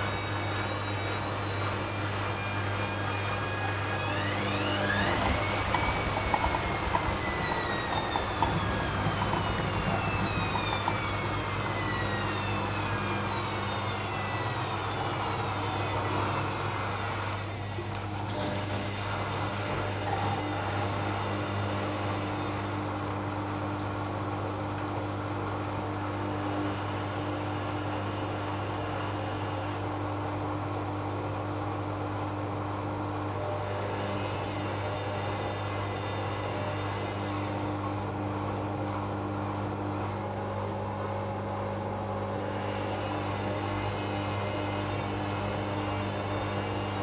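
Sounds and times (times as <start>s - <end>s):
washing machine spinning: 0.0s - 47.0s.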